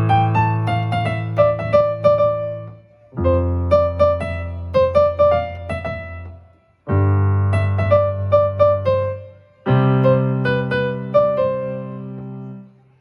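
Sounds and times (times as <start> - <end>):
keyboard piano melody: 0.0 - 13.0.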